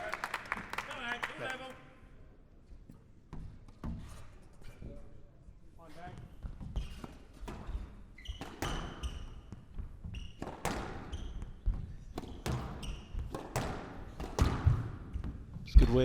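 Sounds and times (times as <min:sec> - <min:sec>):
shoe squeaks on court floor: 0:06.3 - 0:14.4
squash ball cracking off rackets: 0:12.2 - 0:15.0.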